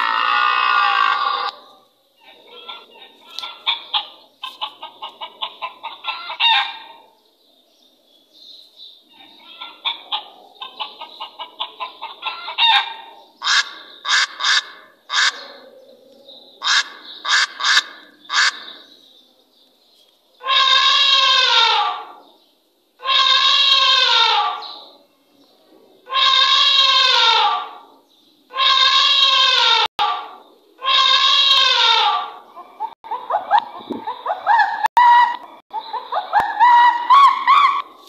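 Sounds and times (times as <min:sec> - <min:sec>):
chicken squawking: 0:00.0 - 0:07.0, 0:09.1 - 0:15.8, 0:16.6 - 0:18.7, 0:20.4 - 0:22.2, 0:23.0 - 0:24.9, 0:26.0 - 0:27.9, 0:28.5 - 0:38.0
chicken clucking: 0:00.8 - 0:07.2, 0:09.1 - 0:13.6, 0:31.8 - 0:38.0.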